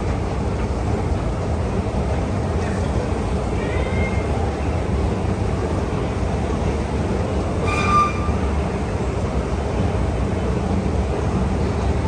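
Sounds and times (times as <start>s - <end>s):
escalator rumbling and humming: 0.9s - 12.0s
high squeak: 7.6s - 8.6s.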